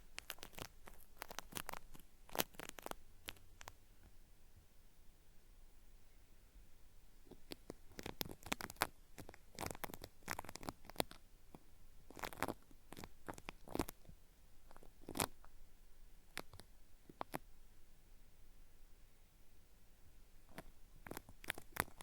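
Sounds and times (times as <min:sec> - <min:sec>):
cotton swab scratching microphone: 0:00.1 - 0:03.8, 0:07.3 - 0:11.2, 0:12.1 - 0:14.1, 0:14.7 - 0:15.5, 0:20.5 - 0:22.0.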